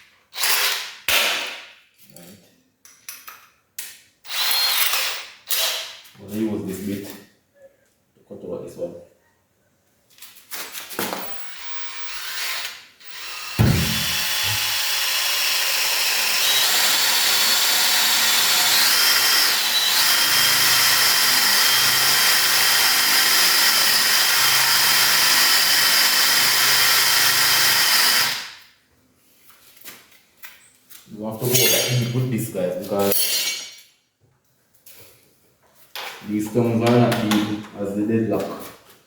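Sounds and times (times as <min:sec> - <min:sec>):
power drill boring into wood: 0:04.3 - 0:05.8, 0:11.4 - 0:28.5.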